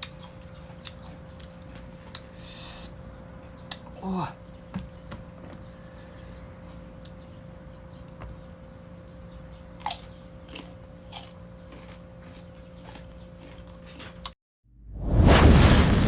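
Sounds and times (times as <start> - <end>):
mango being bitten and chewed: 0.0 - 2.9, 9.8 - 14.4.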